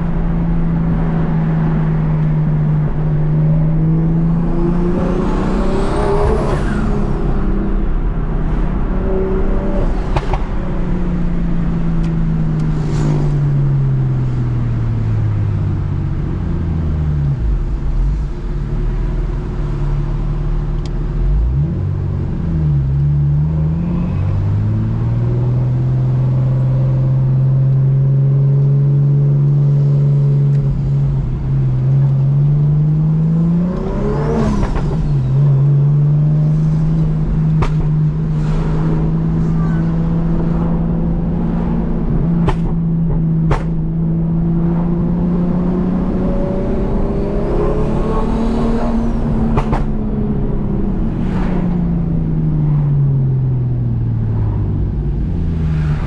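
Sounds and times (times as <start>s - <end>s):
car engine revving: 0.0s - 56.0s
exhaust pops: 42.4s - 44.0s, 49.4s - 50.0s.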